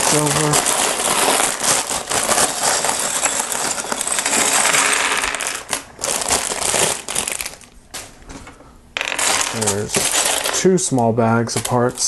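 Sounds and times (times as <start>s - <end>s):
plastic toy bricks clattering: 2.2s - 5.7s, 9.0s - 10.6s.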